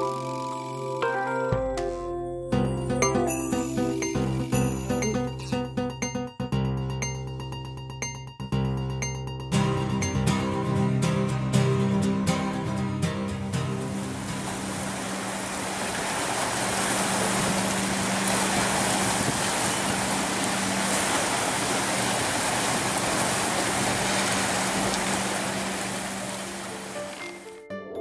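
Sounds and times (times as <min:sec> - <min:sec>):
boat engine humming: 0:02.5 - 0:27.6
rushing water: 0:13.4 - 0:27.6
wind noise: 0:13.9 - 0:26.7.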